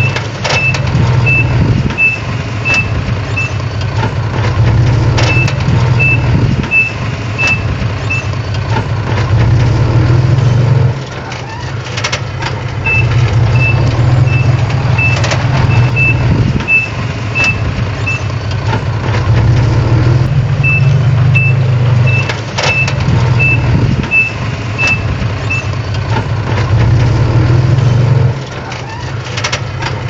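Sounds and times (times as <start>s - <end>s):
reversing alarm beeping: 0.0s - 3.7s, 5.2s - 8.4s, 12.8s - 18.4s, 20.6s - 25.8s
heavy machine diesel engine running: 0.0s - 30.0s
metallic clanks: 0.0s - 30.0s.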